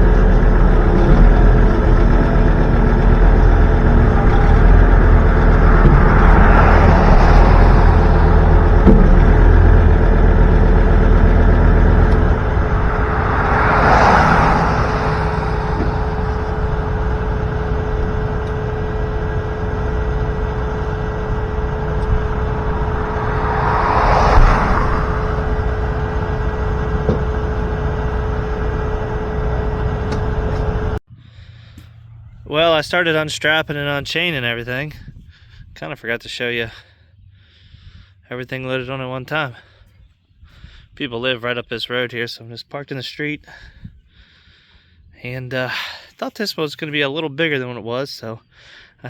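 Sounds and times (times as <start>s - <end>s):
truck engine and road rumble: 0.0s - 47.6s
rushing noise: 1.6s - 31.0s.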